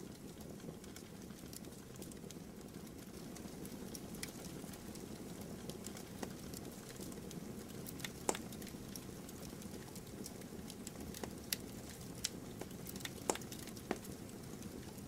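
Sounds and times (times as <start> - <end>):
burning wood crackling and popping: 0.0 - 15.0.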